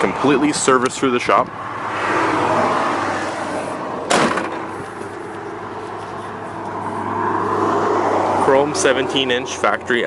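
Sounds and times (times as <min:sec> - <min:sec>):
outdoor vehicle noise: 0:00.0 - 0:10.0
sharp knock: 0:04.1 - 0:04.7.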